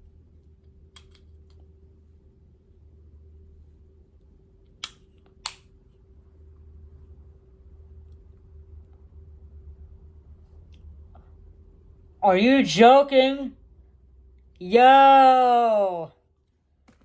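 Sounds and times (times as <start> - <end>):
low steady hum: 0.0 - 17.0
plastic clicks of earbud case: 0.9 - 1.6, 4.8 - 5.7.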